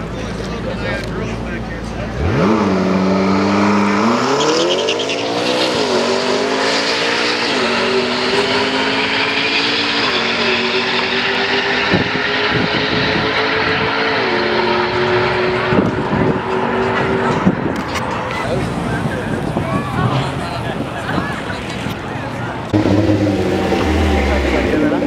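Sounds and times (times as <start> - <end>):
car engine accelerating with upshifts: 2.0 - 19.6, 22.6 - 25.0.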